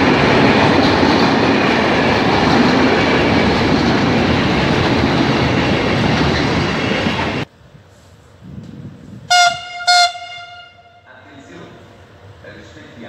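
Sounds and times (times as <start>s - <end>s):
train horn blasts: 9.3s - 11.2s.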